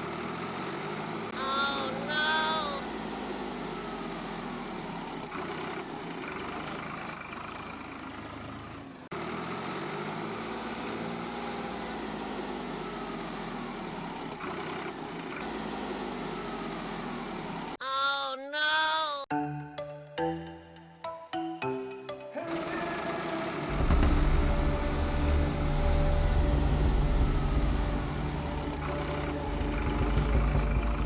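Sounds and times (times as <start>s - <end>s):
toy tractor motor whining: 0.0s - 11.0s, 12.4s - 17.8s, 22.4s - 24.0s.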